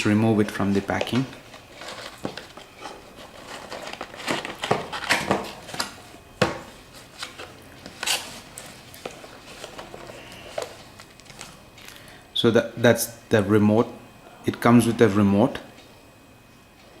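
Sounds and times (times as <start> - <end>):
packaging crinkling and rustling: 0.0 - 12.1.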